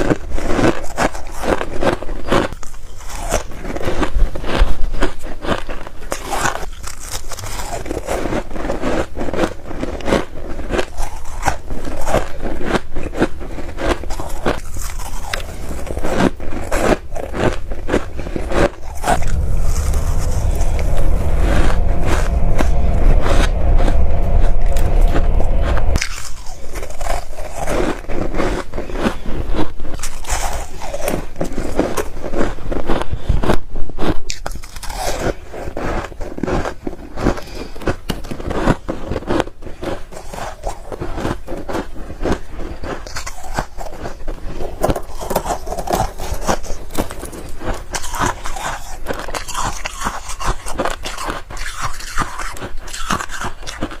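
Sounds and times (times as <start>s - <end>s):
chewing ice crunches: 0.0s - 21.1s, 21.7s - 54.0s.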